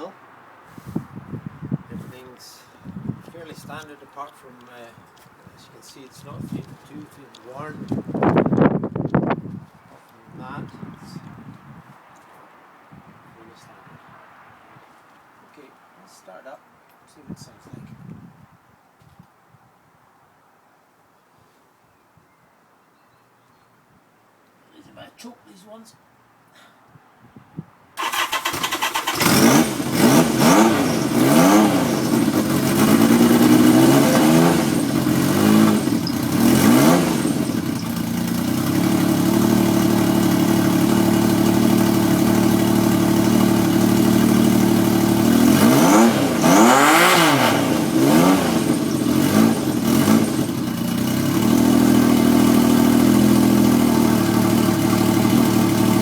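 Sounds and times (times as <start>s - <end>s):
starter motor cranking: 28.0s - 43.0s
motorcycle engine revving and idling: 28.1s - 56.0s.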